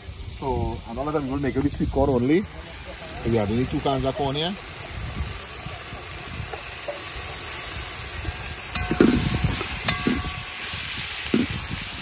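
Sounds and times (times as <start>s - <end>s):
food sizzling in pot: 0.0s - 12.0s
spoon clinking against pot: 8.7s - 10.4s.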